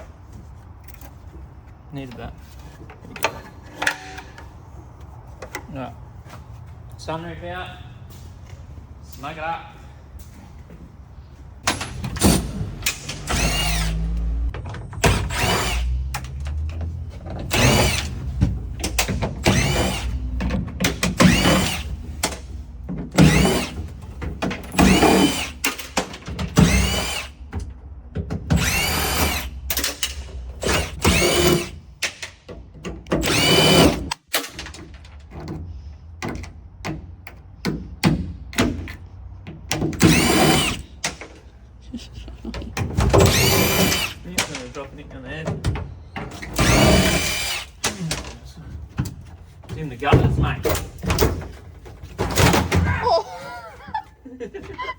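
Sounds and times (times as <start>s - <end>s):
cordless drill whining: 12.2s - 14.4s, 15.0s - 16.0s, 17.5s - 18.2s, 19.4s - 20.3s, 21.2s - 21.9s, 23.2s - 23.9s, 24.7s - 25.8s, 26.6s - 27.4s, 28.6s - 29.6s, 30.6s - 31.7s, 33.2s - 34.2s, 40.0s - 40.9s, 43.2s - 44.2s, 46.5s - 47.8s.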